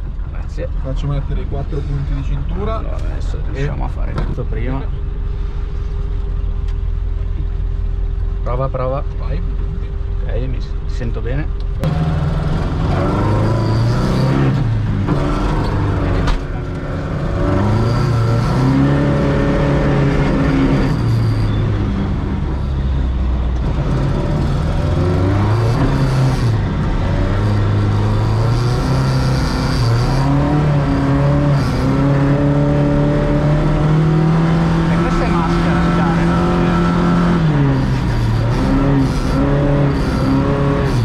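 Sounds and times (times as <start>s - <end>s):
car engine revving: 10.5s - 41.0s.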